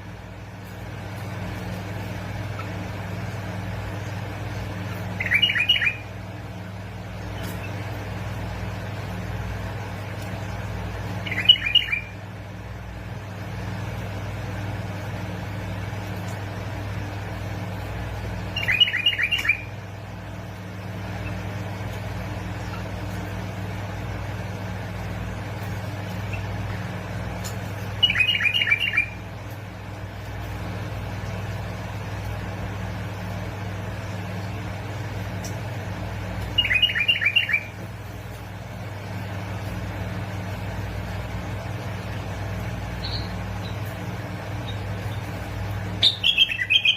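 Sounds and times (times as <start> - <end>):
steady low hum: 0.0 - 46.9
bulbul singing: 3.2 - 6.4, 11.0 - 12.4, 17.7 - 23.0, 25.7 - 29.5, 35.2 - 37.8, 41.5 - 46.9.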